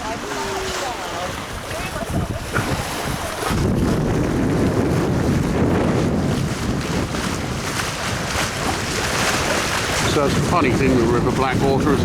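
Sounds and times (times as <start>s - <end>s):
water washing: 0.0s - 12.0s
wind buffeting microphone: 0.0s - 12.0s.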